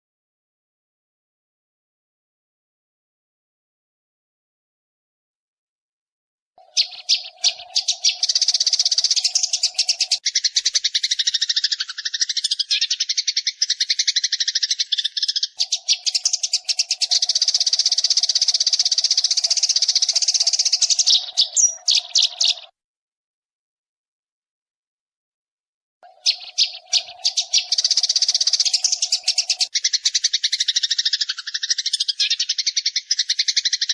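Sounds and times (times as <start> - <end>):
sparrows chattering: 6.6 - 22.7, 26.0 - 33.9.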